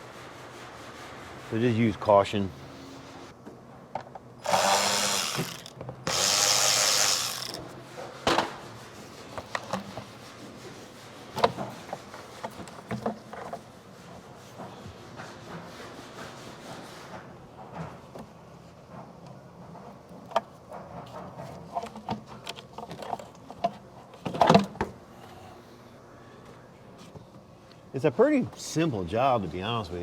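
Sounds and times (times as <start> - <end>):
power tool running: 4.4 - 7.7.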